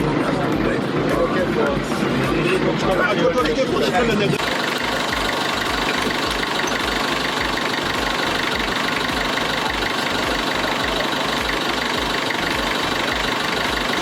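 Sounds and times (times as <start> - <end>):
boat engine running: 3.6 - 14.0.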